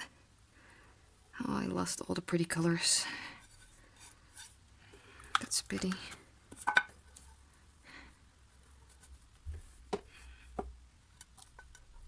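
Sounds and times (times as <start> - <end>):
soft breath: 0.4 - 1.3, 3.0 - 5.4, 7.4 - 8.7, 10.0 - 10.8.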